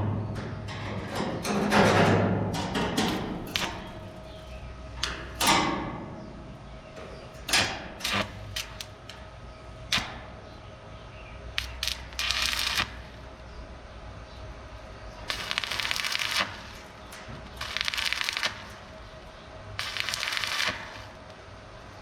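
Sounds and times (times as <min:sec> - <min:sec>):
rattling burst: 0:15.2 - 0:19.2, 0:19.8 - 0:21.3.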